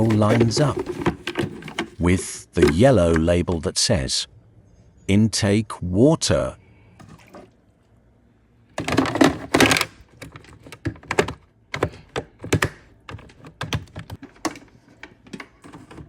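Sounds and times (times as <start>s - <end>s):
plastic trays clattering: 0.0s - 3.7s, 8.8s - 16.0s.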